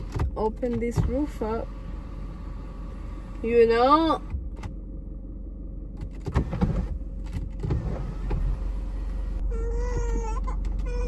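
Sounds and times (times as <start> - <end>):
car cabin hum: 0.0 - 11.0
baby fussing and crying: 9.4 - 11.0.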